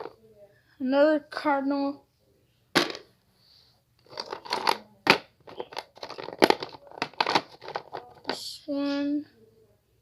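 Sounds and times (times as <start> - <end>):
plastic figurine knocked down: 2.8 - 3.1
plastic figurines clattering: 2.8 - 3.1, 4.0 - 9.0.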